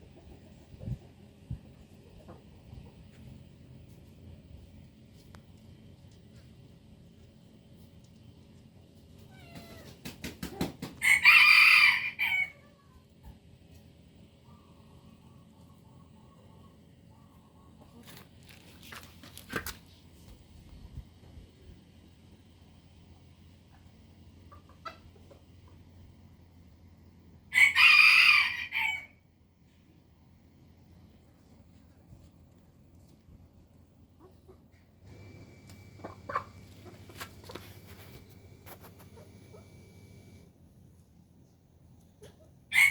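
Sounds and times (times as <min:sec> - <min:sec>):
cat meowing: 0:09.3 - 0:09.9
rooster crowing: 0:11.0 - 0:12.7, 0:27.5 - 0:29.2.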